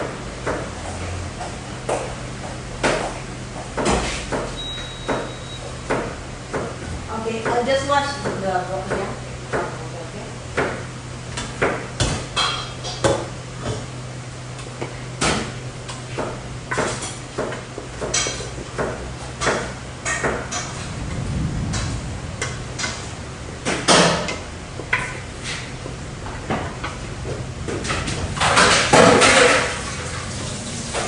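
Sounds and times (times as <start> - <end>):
steady low hum: 5.8 - 31.0
kitchenware clattering: 27.8 - 30.2.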